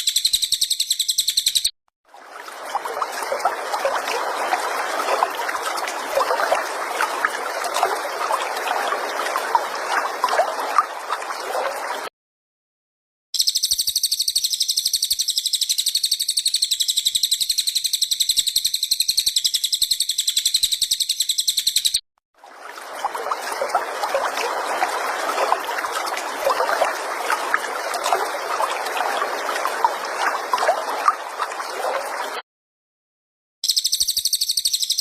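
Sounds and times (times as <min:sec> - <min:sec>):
overlapping bird chirps: 0:00.0 - 0:01.7, 0:13.4 - 0:22.0, 0:33.6 - 0:35.0
songbird high-pitched trill: 0:00.0 - 0:01.7, 0:13.4 - 0:22.0, 0:33.6 - 0:35.0.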